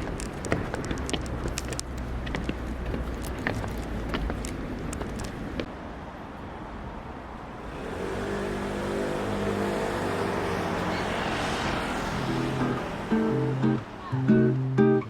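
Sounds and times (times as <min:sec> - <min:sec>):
motor vehicle passing: 0:07.5 - 0:15.0.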